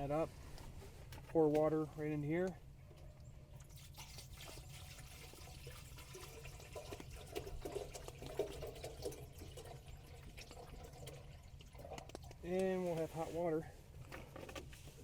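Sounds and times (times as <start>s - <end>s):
water trickling and splashing: 3.0s - 13.2s.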